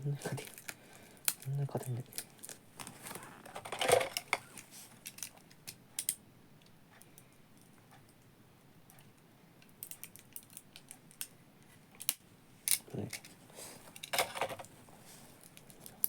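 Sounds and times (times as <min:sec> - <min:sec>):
small objects clicking and tapping: 0:05.0 - 0:06.2, 0:09.0 - 0:11.4.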